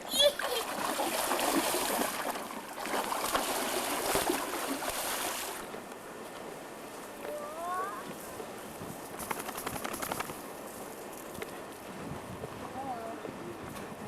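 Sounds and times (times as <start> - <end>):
water splashing and sloshing: 0.0 - 6.5.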